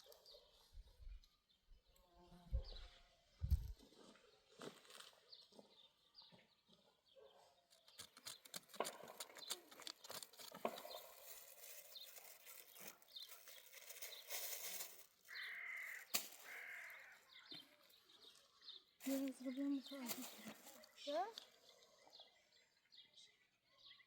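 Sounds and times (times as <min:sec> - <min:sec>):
bird calling: 0:15.2 - 0:17.9.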